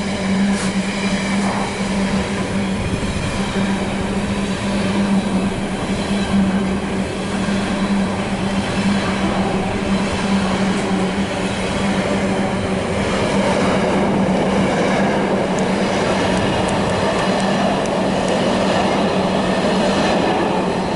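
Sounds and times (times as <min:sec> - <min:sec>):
freight train wheels rumbling on rail: 0:00.0 - 0:20.9.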